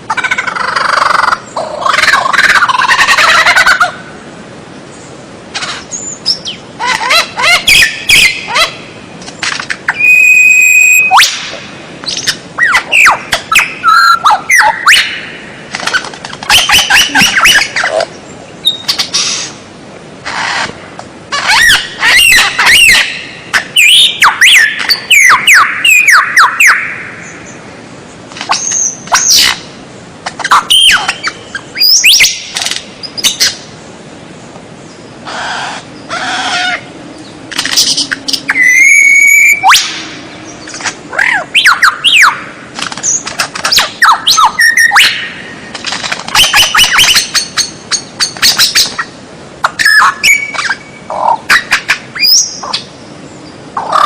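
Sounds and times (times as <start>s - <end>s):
bird singing whistles and chatter: 10.0s - 11.4s, 37.7s - 39.9s, 43.0s - 45.3s.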